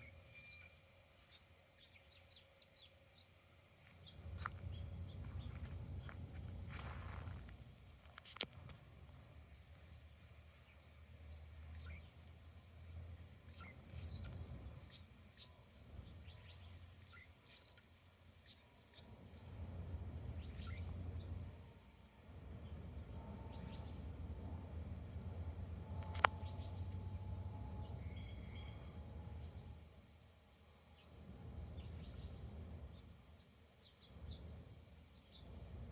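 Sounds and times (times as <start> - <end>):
hummingbird squeaking: 0.0 - 2.9, 9.5 - 21.0
steady low hum: 0.0 - 35.9.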